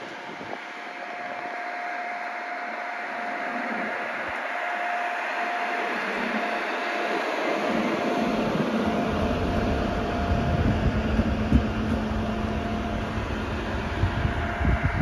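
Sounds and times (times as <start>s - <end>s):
faint steady whine: 0.0s - 15.0s
train wheels rumbling on rails: 4.5s - 15.0s.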